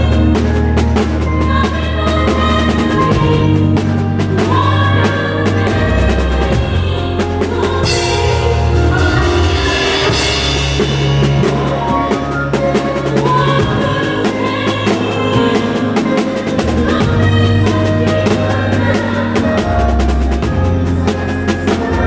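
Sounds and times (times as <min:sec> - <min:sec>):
drum kit beat: 0:00.0 - 0:22.0
sustained bass notes: 0:00.0 - 0:22.0
cymbal wash: 0:07.8 - 0:12.5.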